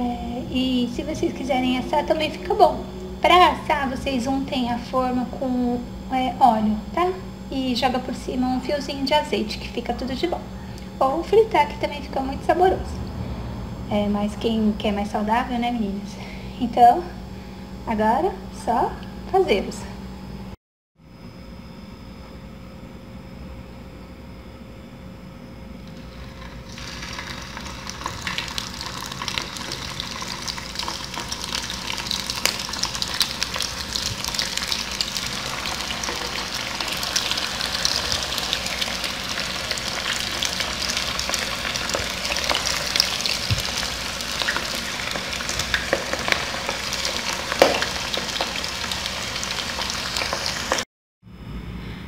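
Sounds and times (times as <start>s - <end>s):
food sizzling in hot oil: 25.9s - 50.8s.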